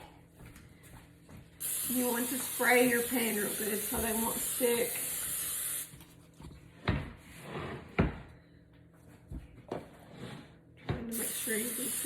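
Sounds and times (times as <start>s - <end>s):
aerosol spray hissing: 1.6s - 5.9s, 11.1s - 12.0s.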